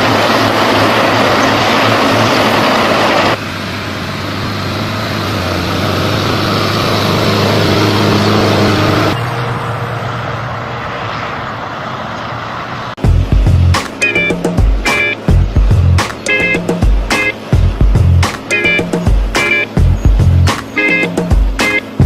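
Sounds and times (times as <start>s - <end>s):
tractor engine running under load: 13.0s - 22.0s.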